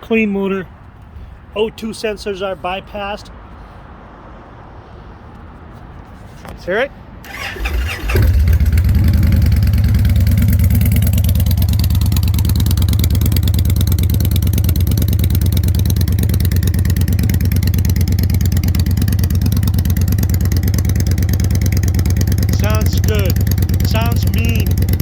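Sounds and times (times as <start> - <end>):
motorcycle engine idling: 7.3 - 25.0.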